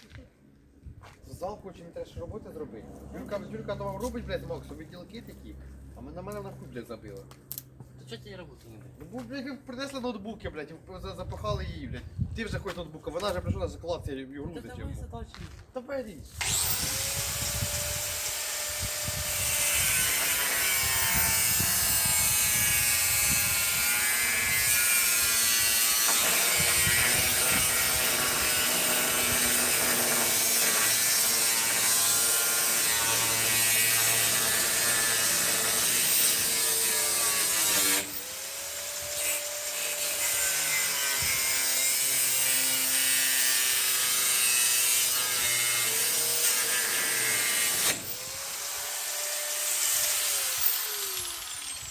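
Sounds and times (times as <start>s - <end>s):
power tool cutting wood: 16.3s - 51.9s.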